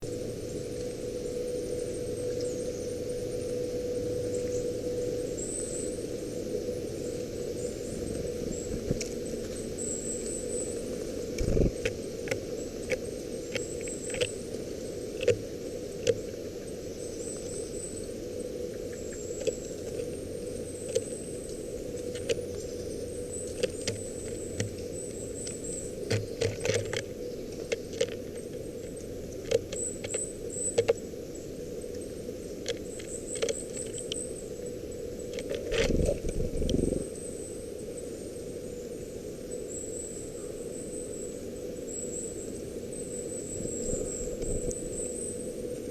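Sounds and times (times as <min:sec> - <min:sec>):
birds pecking clicks and knocks: 0:08.1 - 0:10.4, 0:11.3 - 0:17.9, 0:18.7 - 0:31.1, 0:32.5 - 0:34.6, 0:35.2 - 0:37.0.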